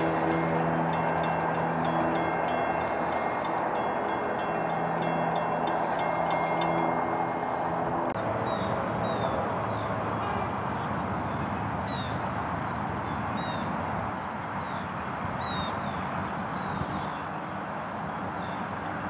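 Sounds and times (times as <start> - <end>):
steady rushing background: 0.0 - 8.2.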